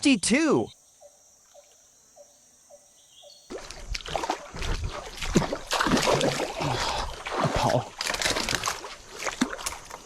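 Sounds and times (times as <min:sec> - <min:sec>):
splashing in shallow water: 0:03.5 - 0:10.0.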